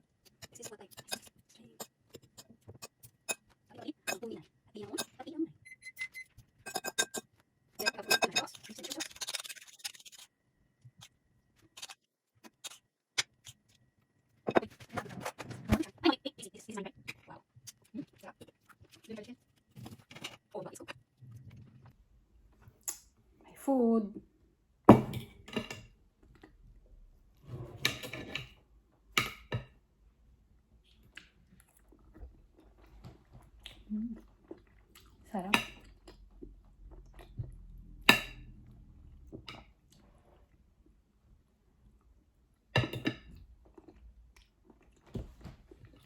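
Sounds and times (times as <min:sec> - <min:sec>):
cutlery scraping a plate: 0:05.9 - 0:10.3, 0:27.4 - 0:28.6
tableware clicks and taps: 0:06.7 - 0:08.4, 0:24.9 - 0:25.9.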